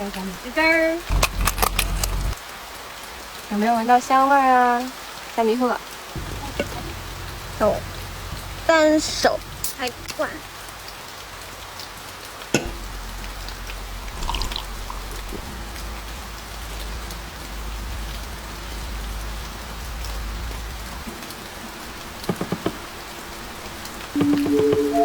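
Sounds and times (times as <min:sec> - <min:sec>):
heavy rain on car roof: 0:00.0 - 0:25.0
music: 0:15.4 - 0:25.0.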